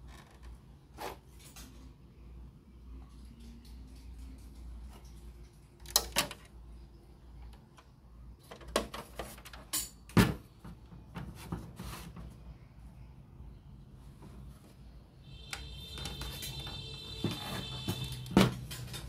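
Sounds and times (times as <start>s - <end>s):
handling clicks and knocks: 15.5s - 19.0s.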